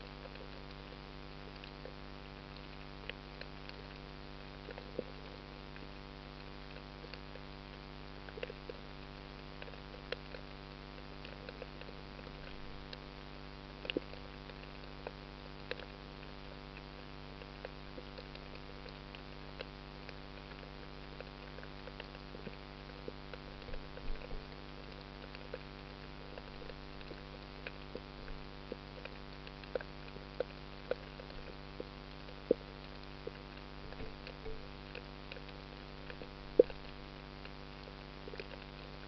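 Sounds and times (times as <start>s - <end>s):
faint clicks and crackles: 0.0s - 39.0s
steady low hum: 0.0s - 39.0s.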